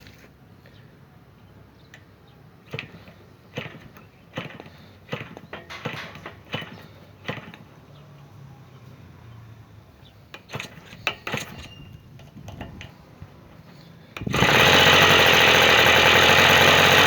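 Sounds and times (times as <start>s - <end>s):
model engine cranking cracks: 2.7s - 7.6s, 10.4s - 11.7s, 14.2s - 17.0s.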